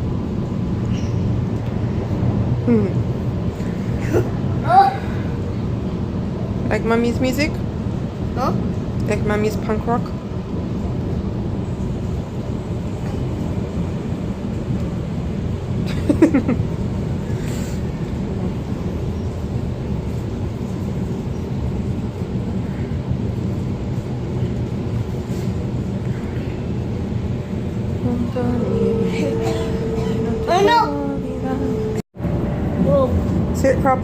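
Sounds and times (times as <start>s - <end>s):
train carriage rumble: 0.0s - 34.0s
short downward sliding tone: 28.0s - 32.0s.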